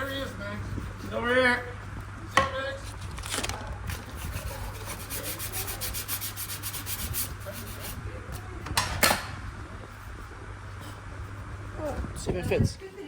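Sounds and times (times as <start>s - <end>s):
hand sanding strokes: 0.0s - 1.5s, 4.1s - 8.0s.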